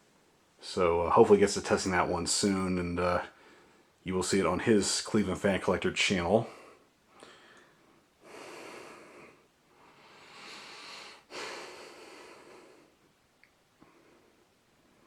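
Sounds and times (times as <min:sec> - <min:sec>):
person breathing: 0:03.3 - 0:04.0, 0:06.5 - 0:13.0.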